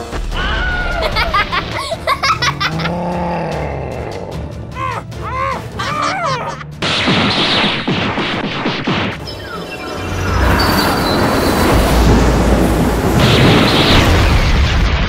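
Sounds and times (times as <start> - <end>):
strained vocal cry: 2.5 - 6.8
rushing noise with falling sweeps: 9.9 - 15.0.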